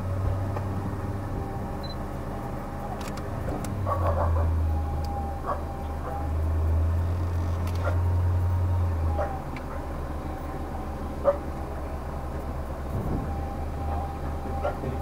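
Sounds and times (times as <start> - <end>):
vehicle engine idling: 0.0 - 15.0
sharp click: 3.0 - 3.8.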